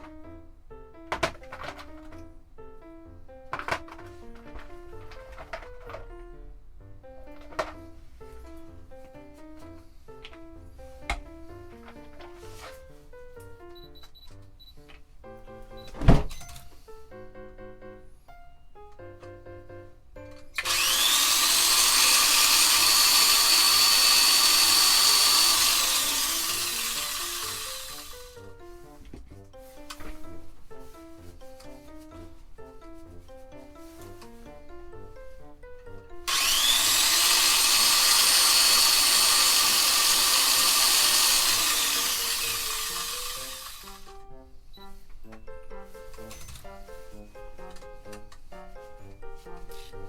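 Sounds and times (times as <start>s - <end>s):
power tool motor whining: 20.5s - 28.6s, 36.2s - 44.2s.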